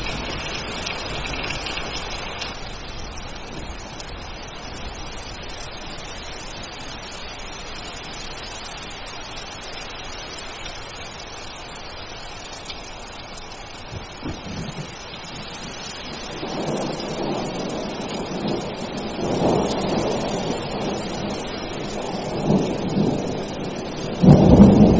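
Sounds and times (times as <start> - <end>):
thunder rolling: 0.0 - 6.7, 13.8 - 24.9
heavy rain: 0.0 - 24.9.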